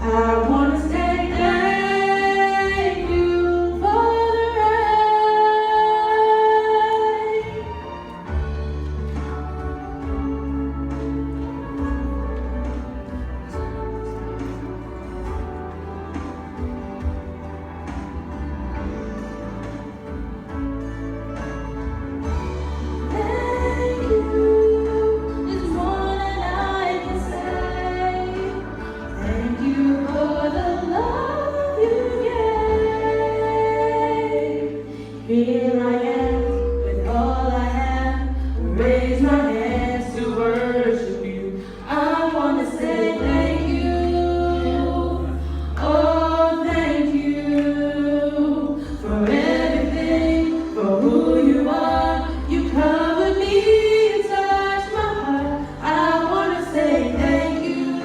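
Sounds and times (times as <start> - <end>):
two voices singing duet: 0.0 - 8.5, 22.3 - 58.0
sustained low bass notes: 7.3 - 58.0.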